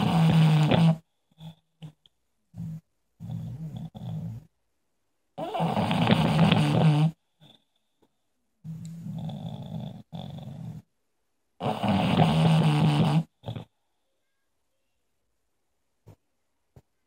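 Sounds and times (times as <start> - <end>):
dog snorting: 0.0 - 2.0, 2.6 - 4.5, 5.4 - 7.6, 9.0 - 10.8, 11.6 - 13.7
dog snoring: 0.0 - 4.5, 5.4 - 7.6, 8.6 - 10.9, 11.6 - 13.8.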